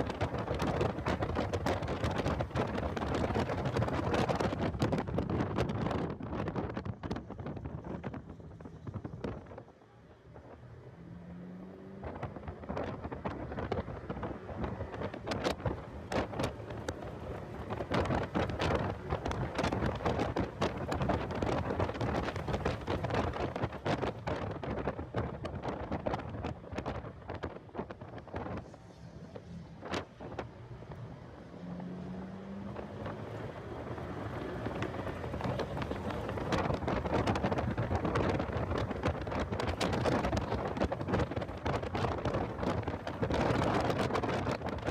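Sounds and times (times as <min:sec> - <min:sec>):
wind buffeting microphone: 0:00.0 - 0:10.9, 0:11.6 - 0:44.9
car engine: 0:00.0 - 0:44.9
road noise: 0:00.0 - 0:44.9.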